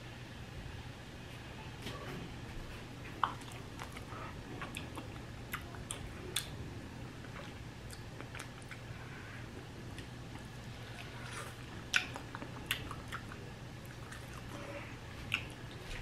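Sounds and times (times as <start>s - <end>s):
mouth clicks and smacks: 3.1s - 6.6s, 7.2s - 8.9s, 9.9s - 14.6s, 15.2s - 15.9s
person chewing chicken wing: 3.2s - 6.6s, 7.2s - 15.9s.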